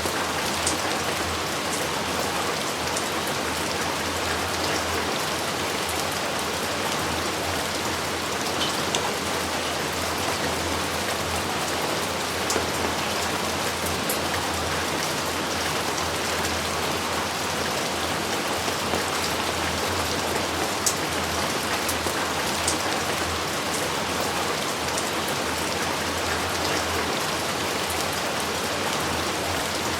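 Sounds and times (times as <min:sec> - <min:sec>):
heavy rain falling: 0:00.0 - 0:29.9.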